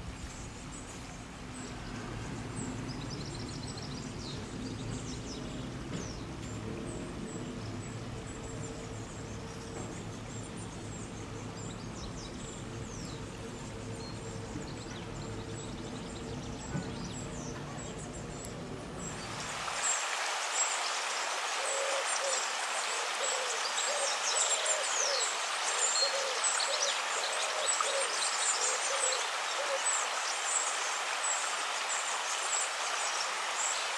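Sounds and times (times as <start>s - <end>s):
steady hiss: 0.0s - 33.9s.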